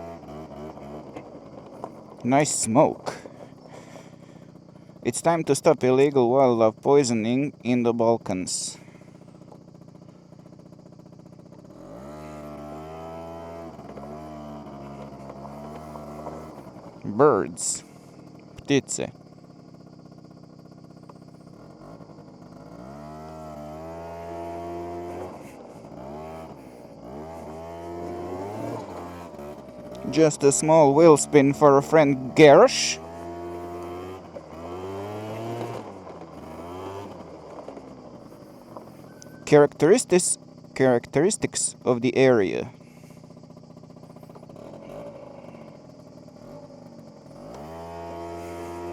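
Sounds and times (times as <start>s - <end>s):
scooter engine revving: 0.0s - 48.9s.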